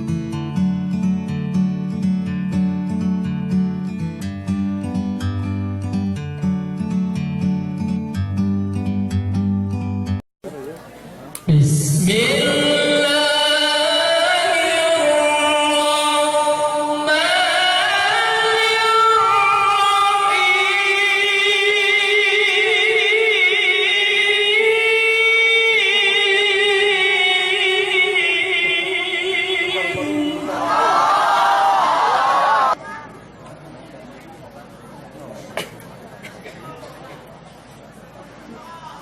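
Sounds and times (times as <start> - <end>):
person reciting melodically: 11.4 - 31.1.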